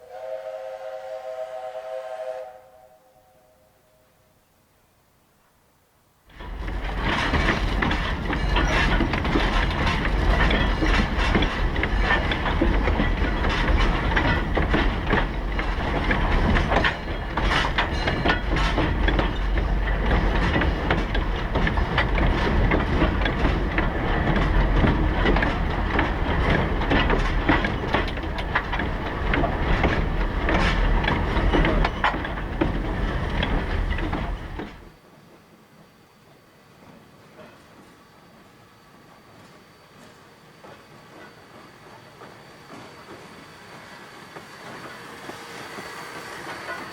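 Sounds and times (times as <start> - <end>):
wheels clattering over track: 6.3 - 35.0
train rumble: 6.3 - 46.9.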